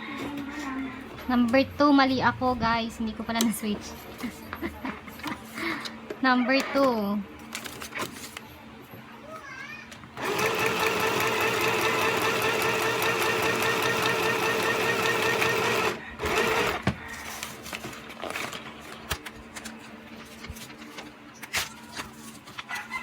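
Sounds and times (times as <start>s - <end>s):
sewing machine running: 10.2s - 16.8s.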